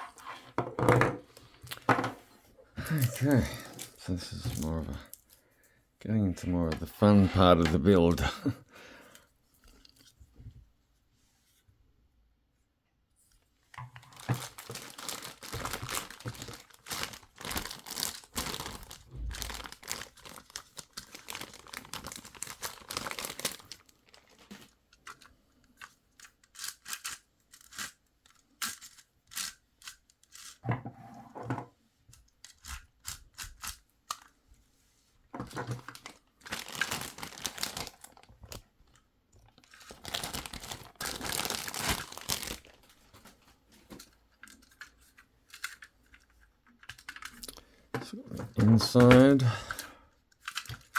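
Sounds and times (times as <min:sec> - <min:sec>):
plastic packaging crinkling and tearing: 0:14.0 - 0:30.6, 0:35.4 - 0:44.9, 0:50.4 - 0:50.9.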